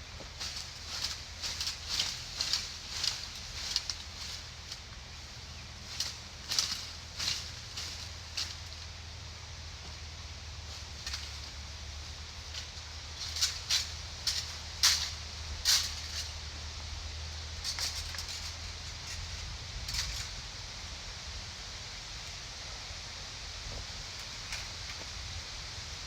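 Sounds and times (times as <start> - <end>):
steady low hum: 0.0 - 26.0
footsteps crunching through undergrowth: 0.1 - 16.6.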